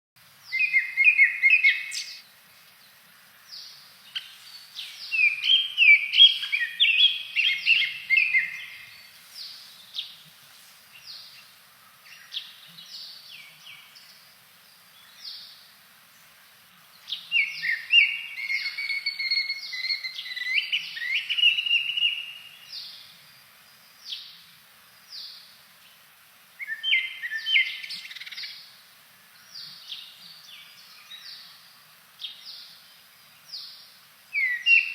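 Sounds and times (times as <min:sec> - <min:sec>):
bird singing whistled notes: 0:00.4 - 0:02.2, 0:03.6 - 0:09.1, 0:17.0 - 0:23.1, 0:26.6 - 0:28.7, 0:33.5 - 0:34.9.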